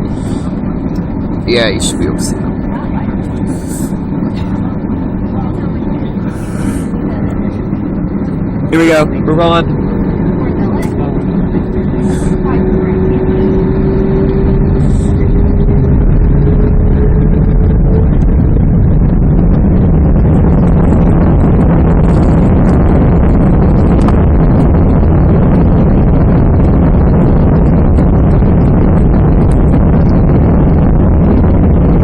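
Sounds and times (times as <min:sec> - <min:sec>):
jet engines at takeoff thrust: 0:00.0 - 0:32.0
rising engine tone: 0:00.0 - 0:32.0
wheels rumbling on runway: 0:00.0 - 0:32.0.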